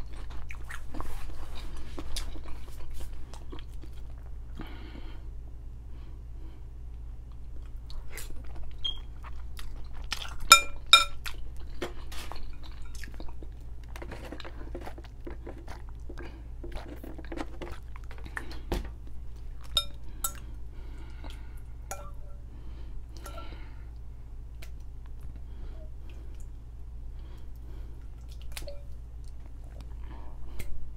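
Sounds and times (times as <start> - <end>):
chewing noodles: 0.0 - 4.4, 7.2 - 21.6
metal fork clinking on glass bowl: 10.5 - 11.2, 19.7 - 20.4, 21.9 - 22.2.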